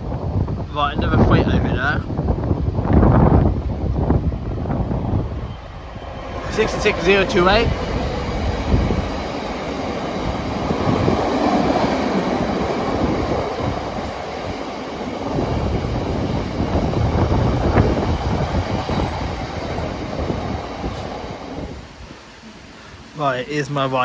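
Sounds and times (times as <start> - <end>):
diesel locomotive: 0.0 - 24.0
train wagons rolling on rails: 1.2 - 22.6.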